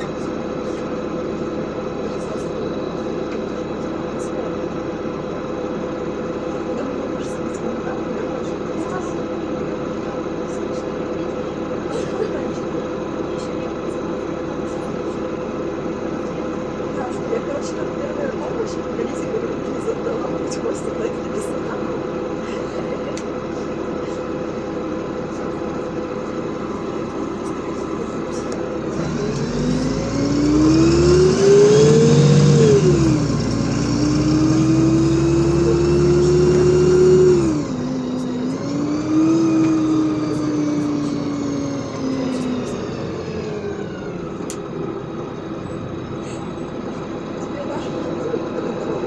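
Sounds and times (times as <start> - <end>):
bus engine accelerating: 0.0 - 49.0.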